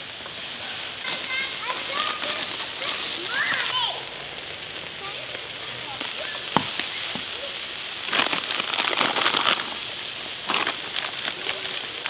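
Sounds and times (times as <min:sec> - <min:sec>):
meat sizzling on metal disc: 0:00.0 - 0:12.0
sharp tap: 0:06.5 - 0:07.3.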